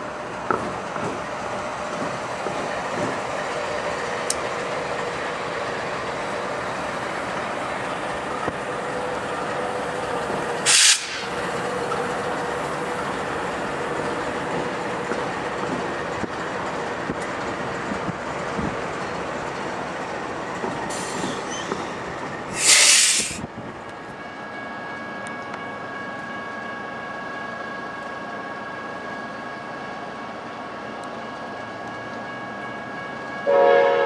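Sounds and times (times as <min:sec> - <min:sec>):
freight train rumbling past: 0:00.0 - 0:34.0
loud hiss: 0:10.7 - 0:11.4, 0:22.5 - 0:23.4.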